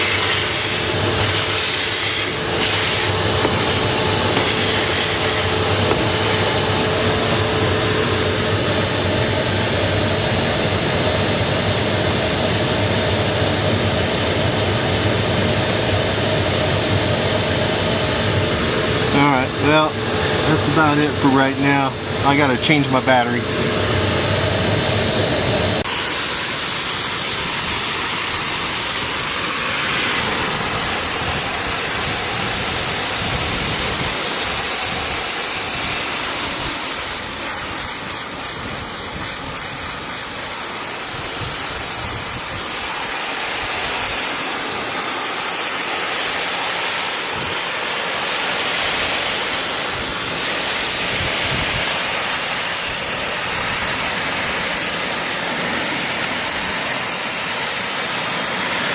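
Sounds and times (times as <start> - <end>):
pressure washer spraying water: 0.0 - 9.8, 25.8 - 58.9.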